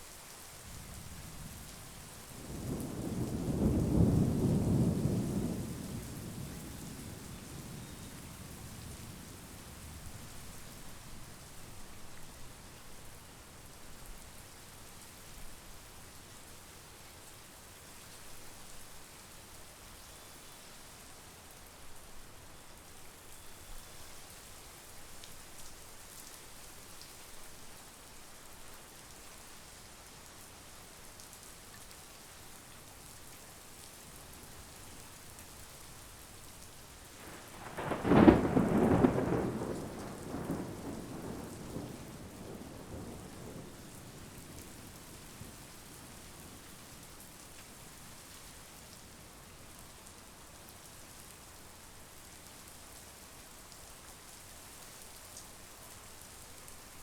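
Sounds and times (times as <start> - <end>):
steady rain: 0.0 - 57.0
thunder rumbling: 2.6 - 8.6, 37.2 - 45.5.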